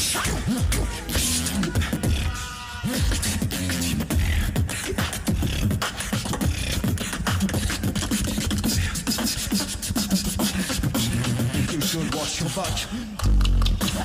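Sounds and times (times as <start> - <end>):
beatboxing kick and snare: 0.0 - 14.0.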